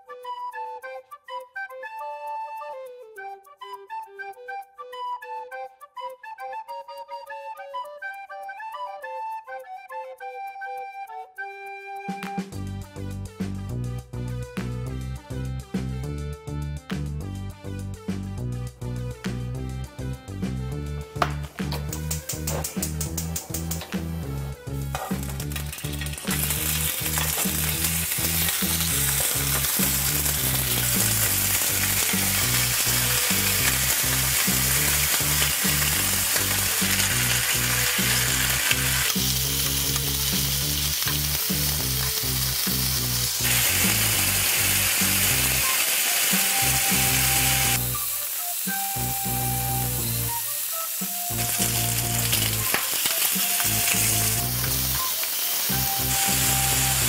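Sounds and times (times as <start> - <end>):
low background music: 0.0 - 57.0
chicken sizzling in oil: 24.8 - 57.0.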